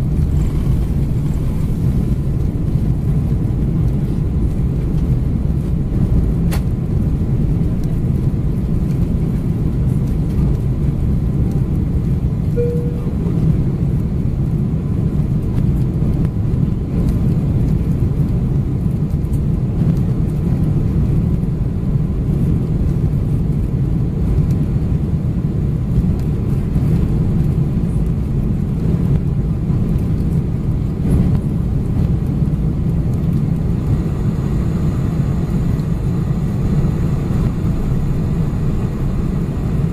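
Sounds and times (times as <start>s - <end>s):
aircraft cabin engine rumble: 0.0s - 39.9s
single tone: 12.5s - 13.6s.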